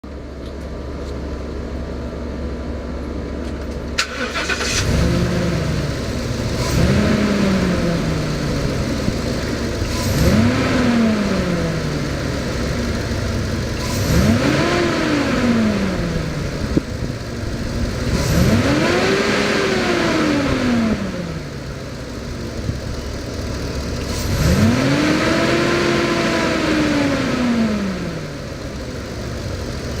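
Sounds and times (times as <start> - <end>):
pickup truck engine revving: 4.1 - 16.8, 17.5 - 21.6, 24.0 - 28.6.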